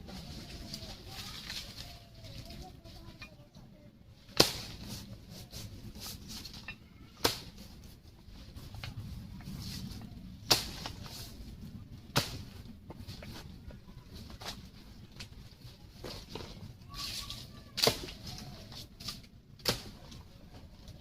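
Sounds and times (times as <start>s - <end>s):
blade chopping tree trunk: 4.4s - 4.9s, 10.4s - 11.0s, 12.1s - 12.6s.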